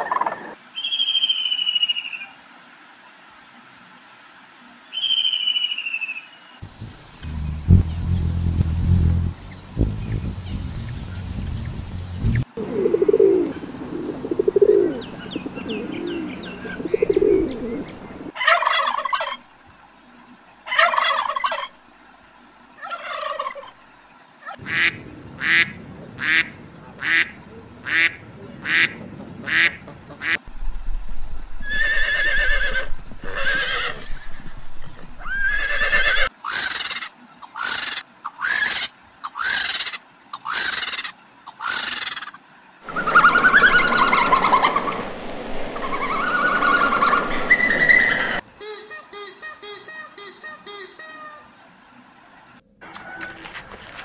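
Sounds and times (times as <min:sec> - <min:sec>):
pigeon cooing: 0:06.6 - 0:18.3, 0:42.9 - 0:48.4
geese honking: 0:24.5 - 0:30.5, 0:42.8 - 0:48.4.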